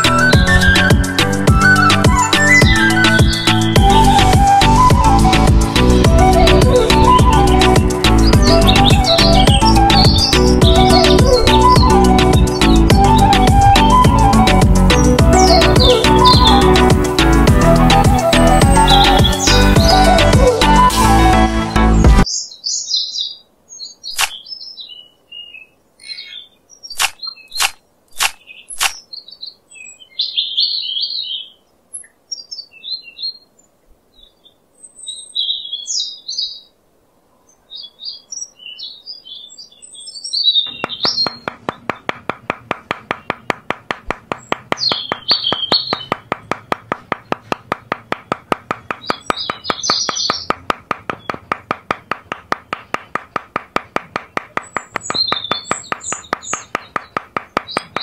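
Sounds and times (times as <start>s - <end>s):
birds chirping: 0.0s - 20.9s, 21.8s - 36.8s, 37.4s - 58.0s
sharp clicks: 24.2s - 24.4s, 27.0s - 29.0s, 40.7s - 58.0s
hammer tapping post into sand: 40.7s - 58.0s.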